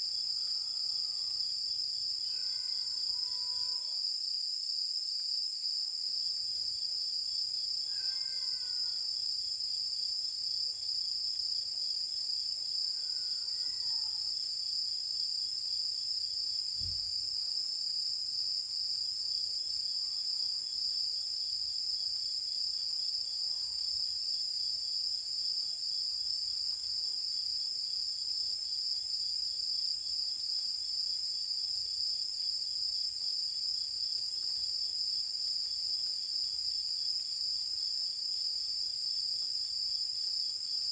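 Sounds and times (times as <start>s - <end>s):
insects trilling: 0.1s - 4.0s, 7.8s - 9.4s, 12.4s - 16.1s.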